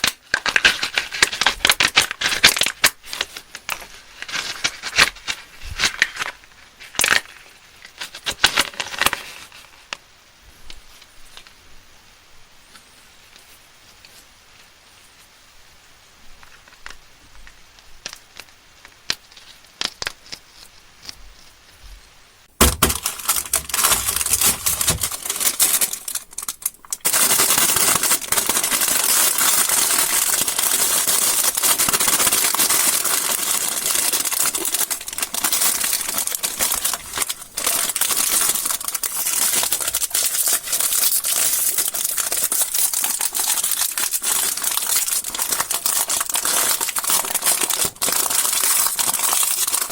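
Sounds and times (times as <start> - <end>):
candy wrappers crinkling: 22.6 - 49.9.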